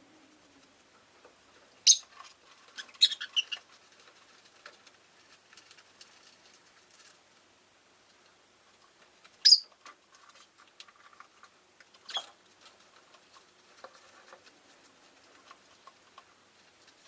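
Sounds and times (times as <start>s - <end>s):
lovebird shrill call: 1.8s - 2.0s, 9.4s - 9.7s
high bird chirps: 1.8s - 2.1s, 9.4s - 9.7s.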